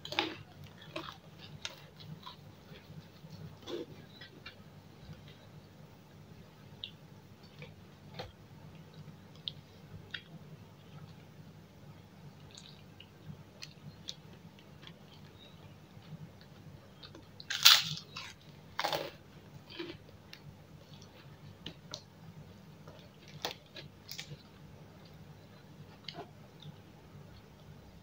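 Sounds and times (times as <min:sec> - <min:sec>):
quiet chewing: 0:00.0 - 0:05.6, 0:18.2 - 0:22.1, 0:22.8 - 0:27.7
faint low hum: 0:00.0 - 0:28.0
crunching bites into cracker: 0:17.4 - 0:19.1.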